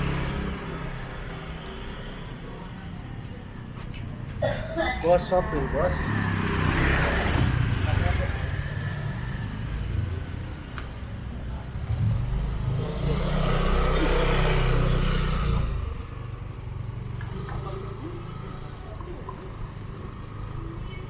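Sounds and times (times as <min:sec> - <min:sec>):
street noise: 0:00.0 - 0:21.0
vehicle engine passing: 0:05.1 - 0:10.6, 0:11.4 - 0:20.7.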